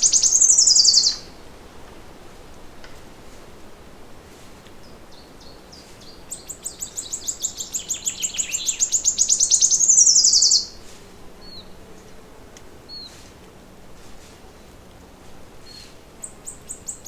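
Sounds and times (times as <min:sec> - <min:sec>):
faint bird chirps: 0:00.0 - 0:01.3, 0:05.1 - 0:10.8
songbird trilling: 0:00.0 - 0:01.3, 0:05.1 - 0:10.8, 0:16.2 - 0:17.0.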